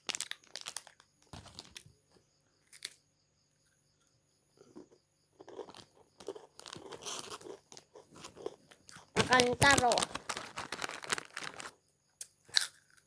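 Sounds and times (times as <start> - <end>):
crunchy snack being chewed: 0.0 - 1.9, 4.6 - 13.0.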